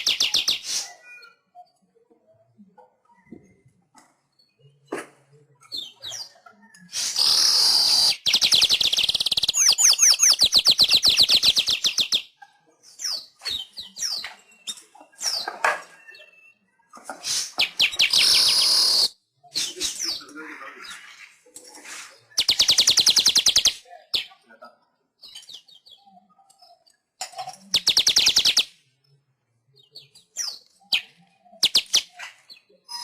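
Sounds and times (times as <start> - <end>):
bird sharp chirps: 0.0 - 1.7, 5.6 - 21.3, 22.1 - 24.4, 27.6 - 28.8, 29.8 - 33.0
bird buzzy wheeze: 6.9 - 8.2.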